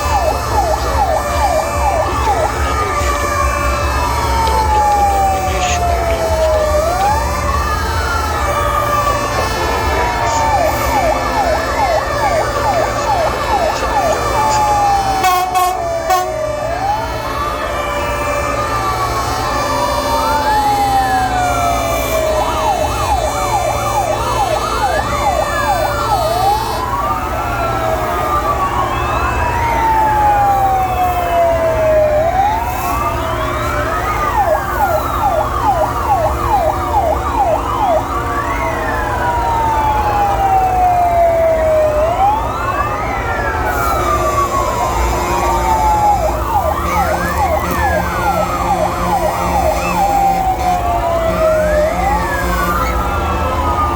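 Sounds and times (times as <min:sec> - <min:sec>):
low engine rumble: 0:00.0 - 0:15.2
fire engine sirens wailing: 0:00.0 - 0:53.9
sirens yelping: 0:00.0 - 0:53.9.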